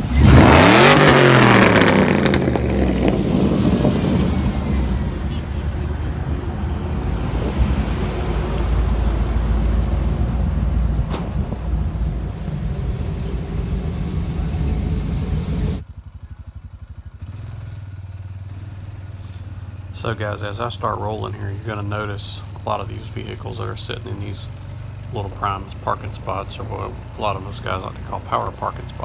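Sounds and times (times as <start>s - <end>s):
rushing noise: 0.0s - 15.8s
vehicle engine rumbling: 0.0s - 29.0s.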